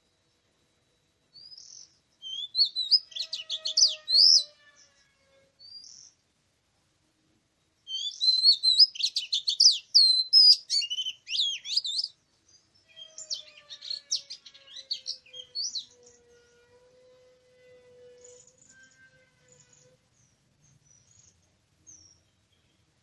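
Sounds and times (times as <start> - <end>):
bird singing clear whistles: 1.3 - 4.6, 7.8 - 12.2, 12.9 - 16.2.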